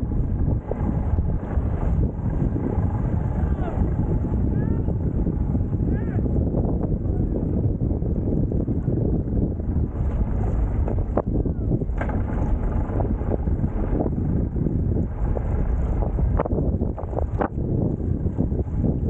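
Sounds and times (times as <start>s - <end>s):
water noise: 0.0s - 6.0s
wind buffeting microphone: 0.0s - 19.0s.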